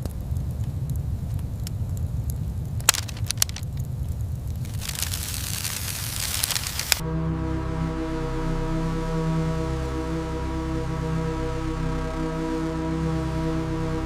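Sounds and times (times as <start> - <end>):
crackling hiss: 0.0 - 7.0
sharp clicks: 2.8 - 3.9, 4.6 - 7.0
music: 7.0 - 14.0.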